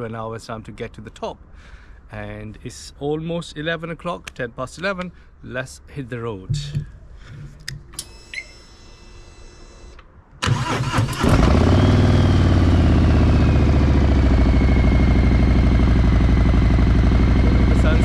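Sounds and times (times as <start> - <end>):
electric starter cranking: 10.4 - 13.0
motorcycle engine idling: 11.6 - 18.0.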